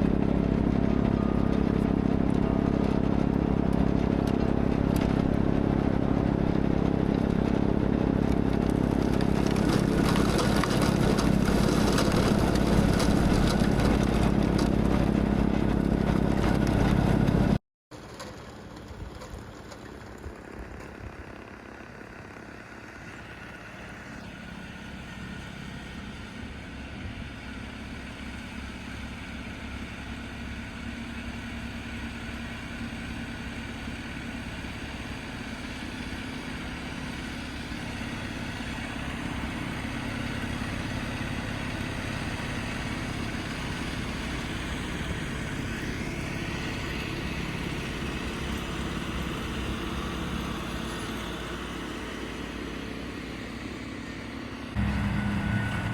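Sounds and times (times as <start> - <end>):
snowblower engine running: 0.0 - 55.9
faint rising whine: 54.8 - 55.9.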